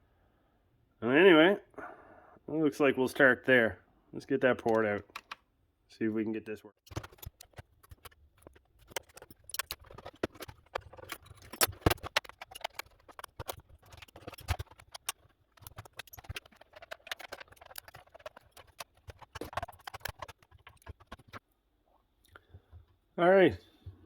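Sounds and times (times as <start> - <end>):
clicks of plastic and metal parts: 4.4 - 5.4, 6.2 - 21.4.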